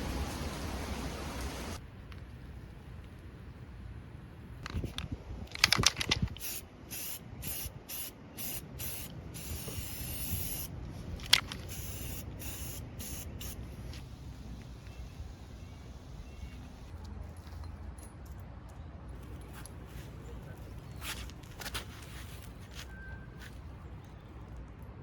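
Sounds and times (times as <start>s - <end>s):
aerosol spray can hissing: 6.4s - 10.7s, 11.6s - 14.3s.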